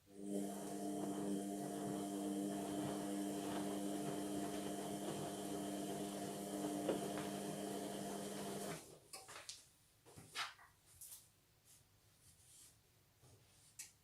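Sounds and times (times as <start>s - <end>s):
washing machine hum: 0.0s - 8.9s.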